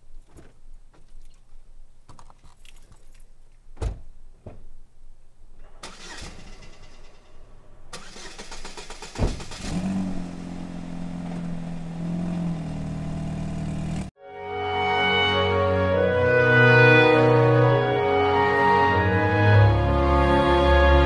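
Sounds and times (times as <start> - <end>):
engine catching thump: 3.8 - 4.7, 8.8 - 10.3
car engine cranking: 5.6 - 14.1
car engine idling: 5.9 - 14.1.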